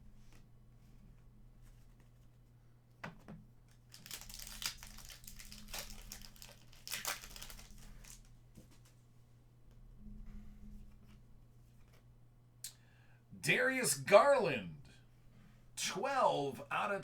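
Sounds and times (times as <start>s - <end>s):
plastic wrapper crinkling and tearing: 3.7s - 8.3s.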